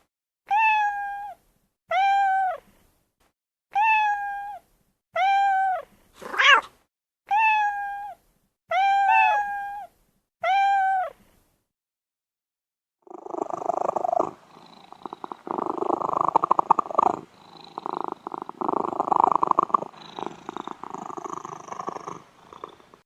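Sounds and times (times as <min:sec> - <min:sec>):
cat meowing: 0:00.5 - 0:02.6, 0:03.7 - 0:04.6, 0:05.2 - 0:11.2.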